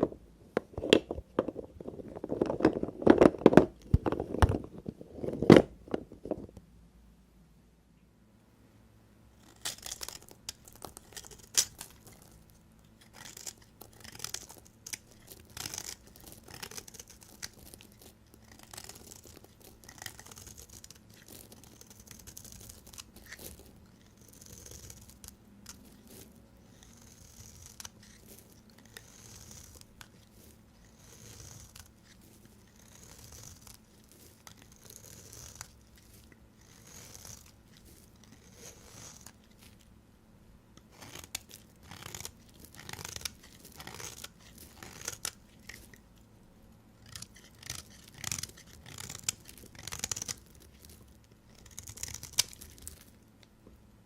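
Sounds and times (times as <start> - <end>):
knife cutting soap: 9.4 - 39.9, 40.8 - 46.0, 47.0 - 53.1.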